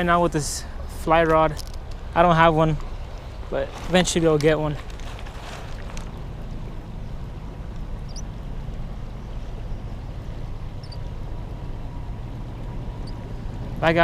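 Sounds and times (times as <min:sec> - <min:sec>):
river water rushing: 0:00.0 - 0:14.0
faint high chirps: 0:10.8 - 0:11.0.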